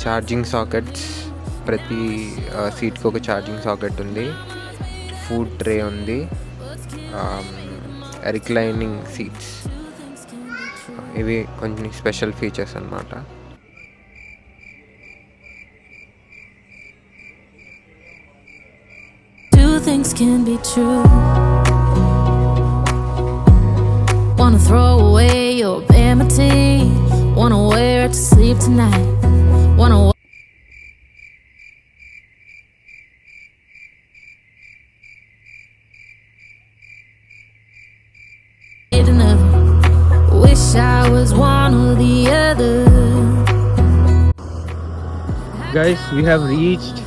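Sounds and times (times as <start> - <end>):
cricket chirping: 13.6 - 20.4, 30.2 - 39.0.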